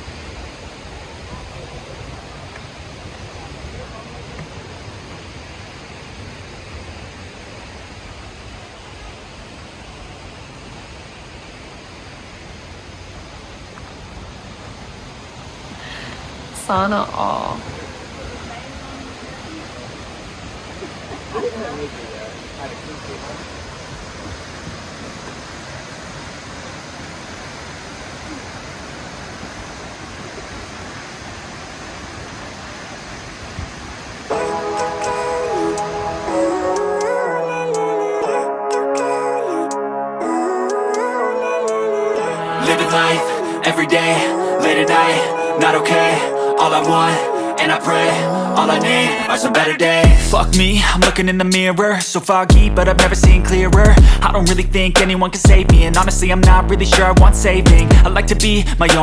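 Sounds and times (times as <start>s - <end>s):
waterfall rushing into pool: 0.0s - 38.5s, 40.2s - 57.1s
waterfall pouring into pool: 17.7s - 34.3s.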